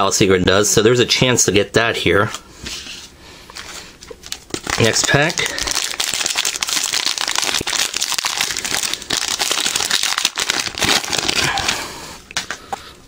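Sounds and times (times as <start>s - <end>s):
plastic wrapper crinkling: 3.5s - 12.8s.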